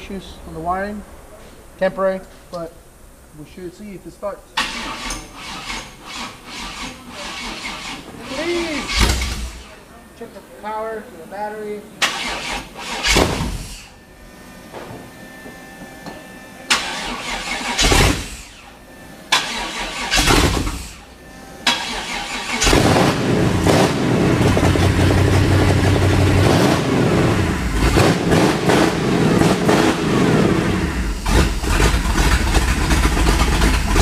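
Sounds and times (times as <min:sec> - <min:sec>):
car engine running: 0:22.5 - 0:34.0.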